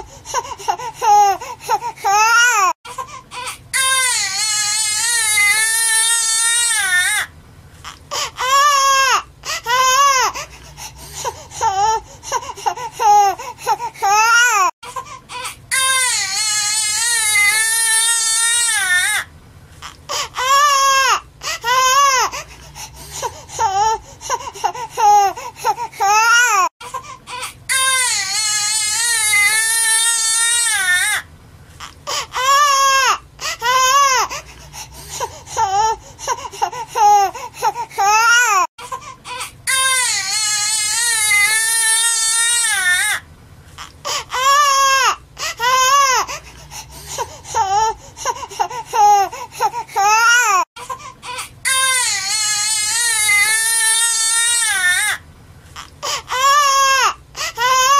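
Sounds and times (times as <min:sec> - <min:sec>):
baby crying hard: 0:01.0 - 0:07.3, 0:08.3 - 0:10.4, 0:13.0 - 0:19.3, 0:20.2 - 0:22.4, 0:24.8 - 0:31.3, 0:32.1 - 0:34.4, 0:36.9 - 0:43.2, 0:44.1 - 0:46.3, 0:48.6 - 0:55.2, 0:56.0 - 0:57.9.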